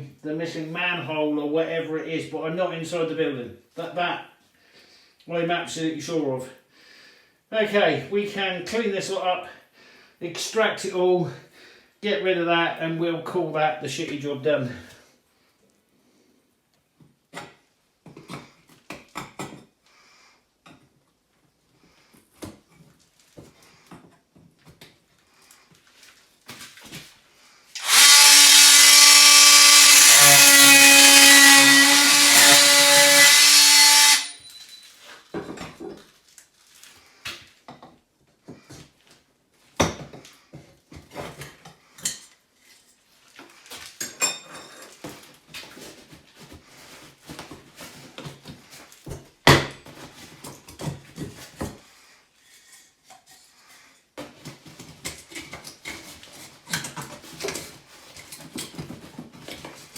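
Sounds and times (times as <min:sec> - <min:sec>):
electric motor tool running: 0:27.8 - 0:34.4
knocks and clatter of handling: 0:34.5 - 0:36.4, 0:54.2 - 0:59.9.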